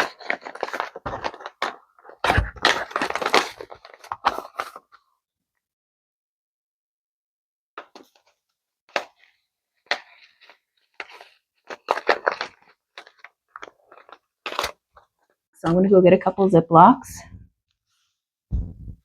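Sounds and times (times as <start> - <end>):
plastic bags crinkling: 0.0 - 4.8, 9.9 - 15.3.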